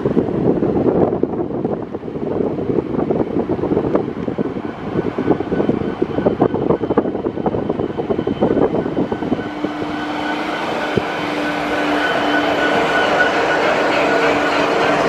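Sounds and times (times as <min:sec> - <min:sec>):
train approaching: 0:00.0 - 0:15.0
wind on microphone: 0:00.0 - 0:15.0
steady tones: 0:03.1 - 0:15.0.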